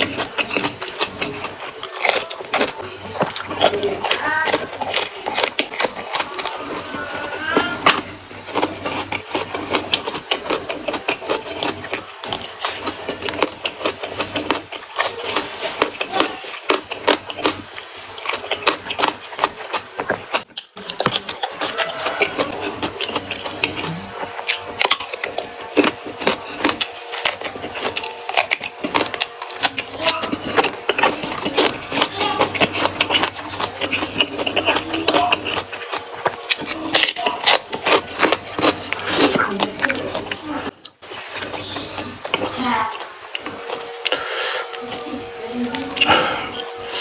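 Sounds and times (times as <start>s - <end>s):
person crunching raw vegetables: 0.0s - 47.0s.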